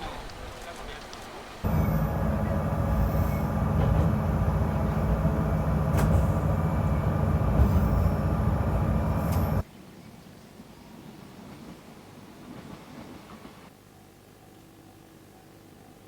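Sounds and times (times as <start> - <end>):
steady hum: 1.6 - 9.6
train rumbling: 1.6 - 9.6.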